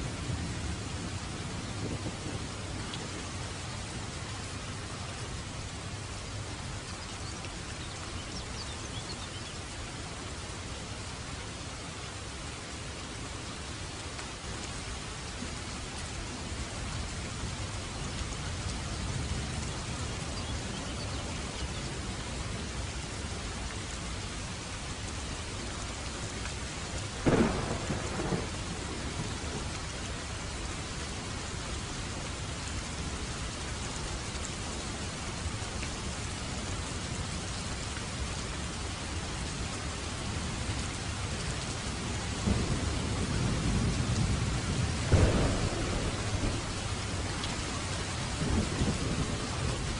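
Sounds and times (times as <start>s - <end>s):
heavy rain falling: 0.0s - 49.9s
thunder rumbling: 0.1s - 3.4s, 27.2s - 30.1s, 42.4s - 49.9s.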